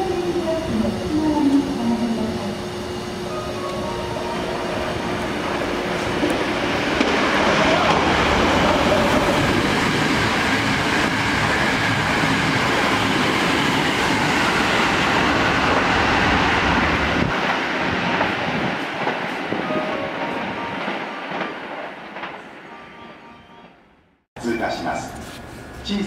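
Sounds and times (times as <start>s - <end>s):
train wheels rushing on rail: 3.2s - 22.8s.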